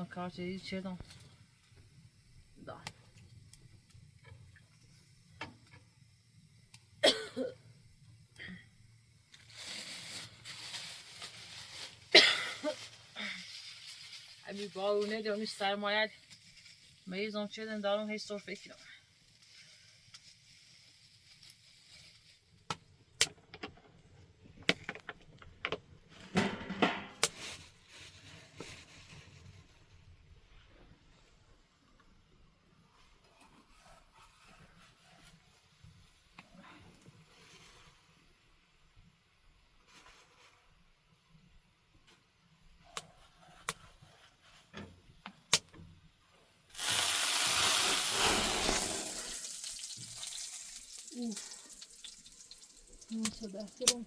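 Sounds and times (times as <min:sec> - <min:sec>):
rustling scrape: 0:09.4 - 0:15.6, 0:27.3 - 0:31.4, 0:32.9 - 0:36.2, 0:39.8 - 0:40.7, 0:43.1 - 0:45.0, 0:46.8 - 0:50.7
loud hissing rush: 0:46.8 - 0:49.5.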